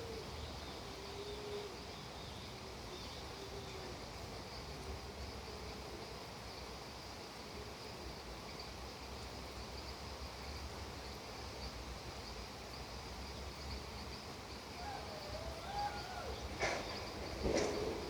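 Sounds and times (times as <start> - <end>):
background hiss: 0.0 - 18.0
insects chirring: 6.4 - 18.0.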